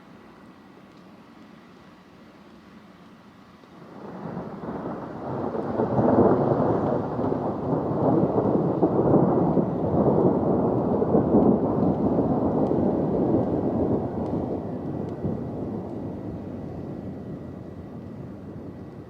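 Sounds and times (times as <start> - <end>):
rolling thunder: 3.8 - 19.0.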